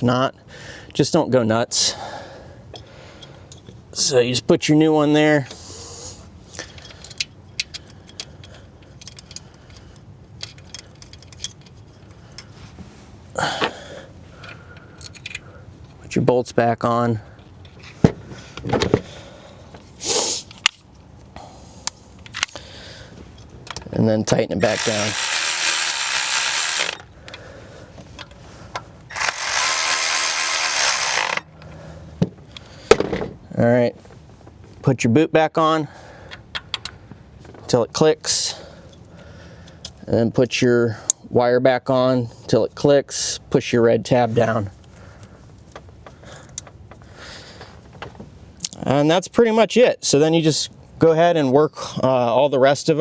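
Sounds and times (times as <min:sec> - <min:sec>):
rustle: 0:05.4 - 0:16.0
light clicks and metallic clinks: 0:06.6 - 0:12.5
ratchet turning bolt: 0:24.6 - 0:27.0, 0:29.1 - 0:31.5.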